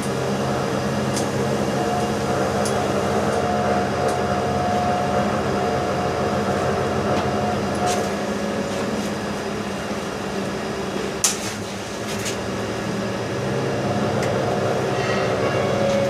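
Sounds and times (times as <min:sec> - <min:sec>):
machine humming: 0:00.0 - 0:08.7.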